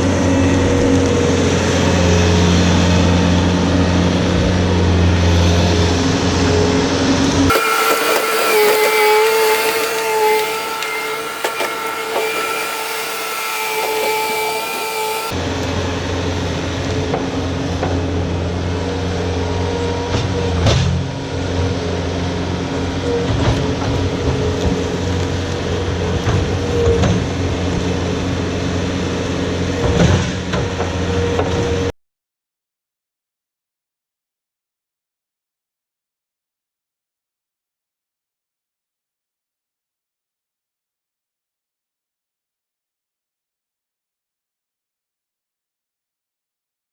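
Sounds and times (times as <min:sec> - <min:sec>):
engine high whine: 0:00.0 - 0:15.3.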